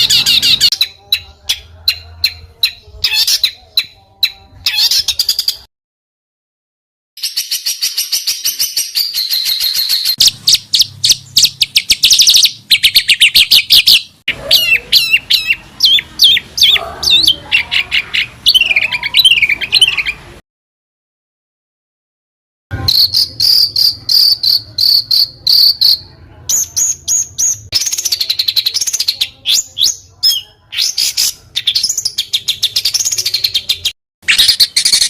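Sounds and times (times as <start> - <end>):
songbird trills and whistles: 7.2 - 17.3, 22.8 - 35.0.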